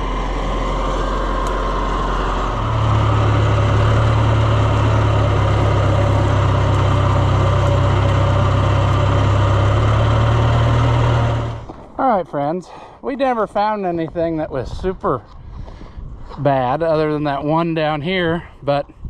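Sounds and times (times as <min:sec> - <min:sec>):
vehicle engine speeding up: 0:00.0 - 0:11.8.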